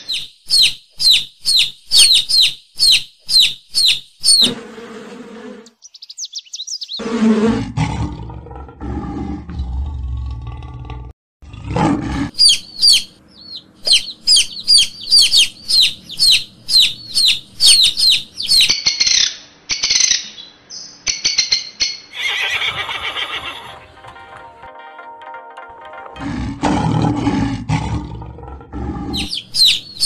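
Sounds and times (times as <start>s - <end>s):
bird chirping: 0.0s - 4.6s, 5.6s - 7.1s, 12.3s - 24.2s, 28.1s - 30.0s
low rumbling: 26.2s - 29.6s.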